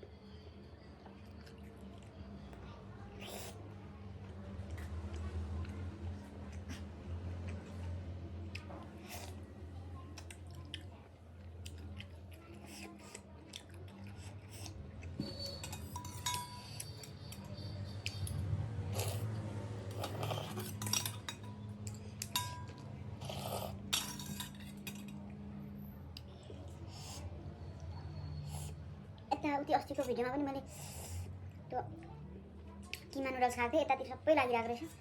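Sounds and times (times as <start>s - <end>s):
spoon clinking against bowl: 15.2s - 18.4s, 20.4s - 23.0s, 23.9s - 25.2s.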